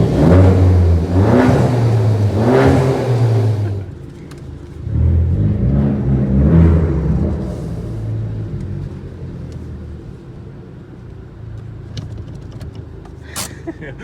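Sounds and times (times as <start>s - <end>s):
car engine accelerating: 0.0s - 10.5s.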